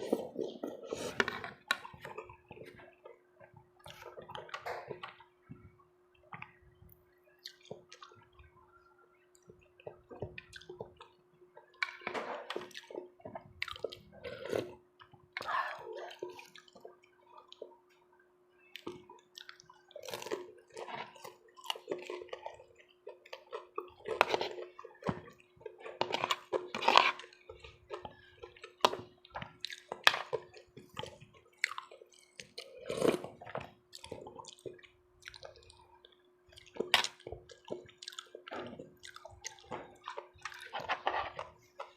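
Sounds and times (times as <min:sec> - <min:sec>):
wet chewing and slurping: 0:09.4 - 0:17.8, 0:18.7 - 0:41.9.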